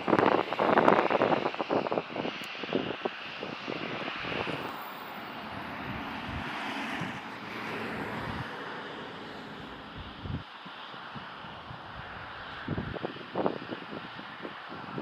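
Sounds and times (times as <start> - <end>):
jet engines roaring: 0.0 - 15.0
wind buffeting microphone: 0.0 - 15.0.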